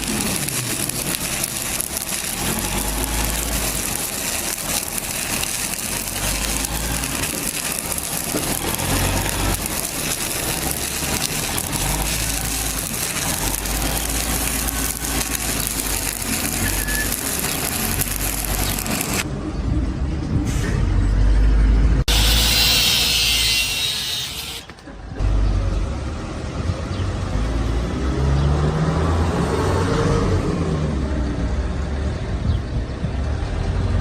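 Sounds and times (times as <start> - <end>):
welding arc crackling and hissing: 0.0 - 19.3, 22.0 - 24.7.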